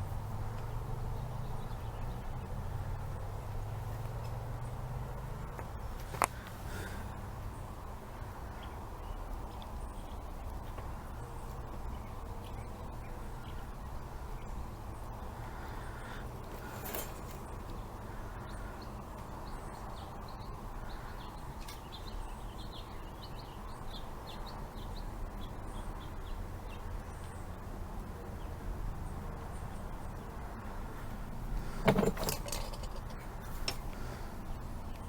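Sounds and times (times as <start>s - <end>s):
metallic clatter: 16.5s - 17.6s, 31.7s - 33.9s.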